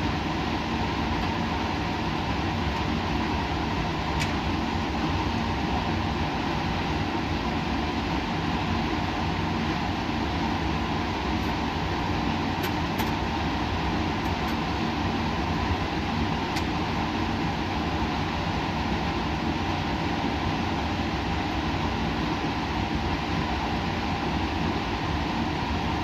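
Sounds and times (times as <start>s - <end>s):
equipment whir and hum: 0.0s - 26.0s.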